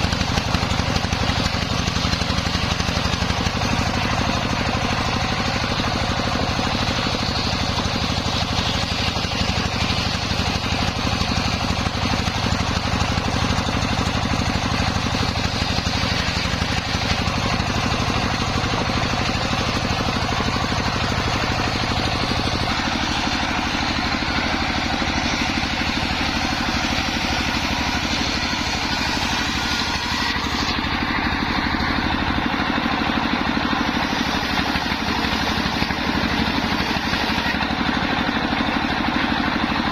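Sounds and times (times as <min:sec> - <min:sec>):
engine-driven circular saw running: 0:00.0 - 0:39.9
saw blade hissing through wood: 0:14.4 - 0:31.1, 0:33.8 - 0:37.6.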